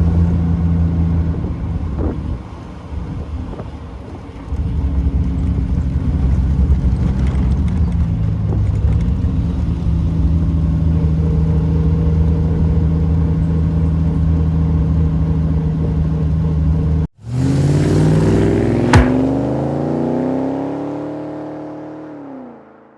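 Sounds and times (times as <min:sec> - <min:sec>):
car engine revving: 0:04.5 - 0:22.6
sharp click: 0:18.9 - 0:19.5.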